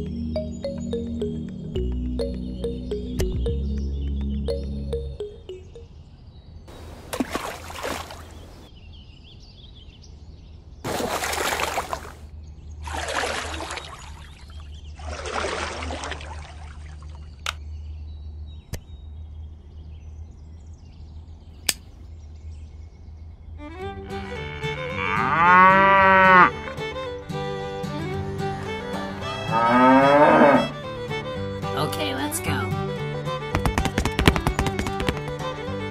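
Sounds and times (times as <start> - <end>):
water splashing and trickling: 6.7 - 8.7, 10.9 - 17.5
sharp clicks: 21.6 - 21.9.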